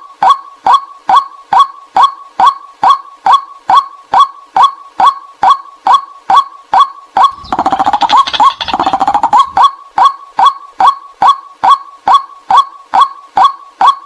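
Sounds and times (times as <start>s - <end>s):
fast dense chattering: 7.3s - 9.6s
waterhen calling short notes: 7.3s - 9.6s.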